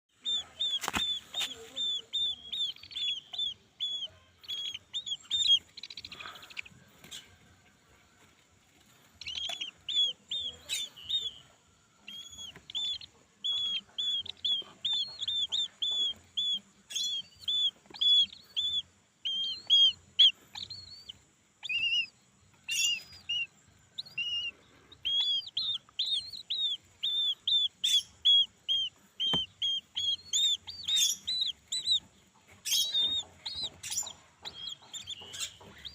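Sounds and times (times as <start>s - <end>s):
bird chick calling: 0.1s - 7.7s, 8.8s - 35.9s.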